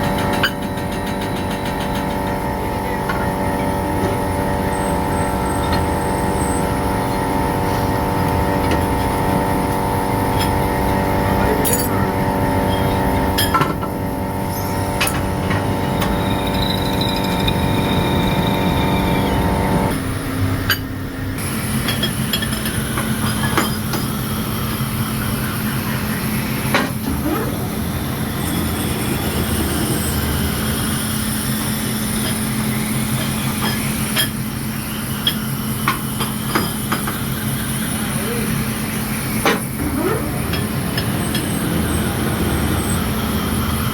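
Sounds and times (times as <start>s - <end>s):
low machine hum: 0.0s - 33.6s
workshop machinery humming: 0.0s - 43.9s.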